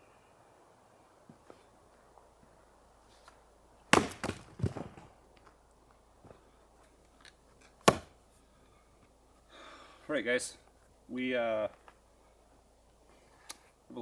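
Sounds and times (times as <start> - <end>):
axe chopping into log: 3.9 - 4.9, 7.8 - 8.2
light knocks of wood: 7.6 - 8.1.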